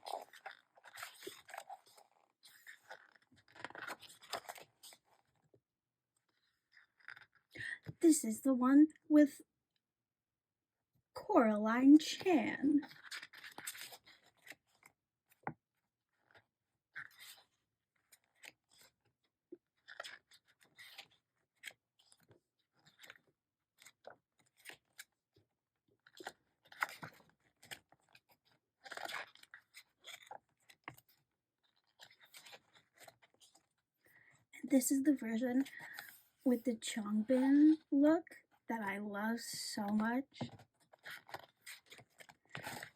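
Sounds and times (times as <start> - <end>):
photo book pages rustling: 0.0 - 5.4, 12.6 - 15.5, 17.0 - 19.0, 19.8 - 25.2, 26.0 - 34.4, 39.8 - 42.9.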